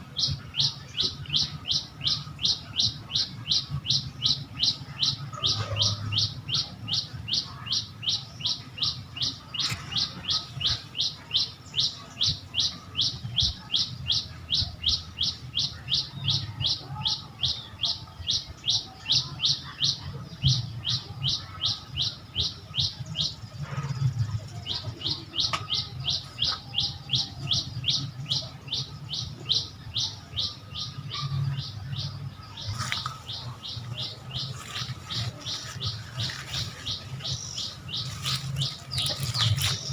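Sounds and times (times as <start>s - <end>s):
bird chirping: 24.5s - 39.9s.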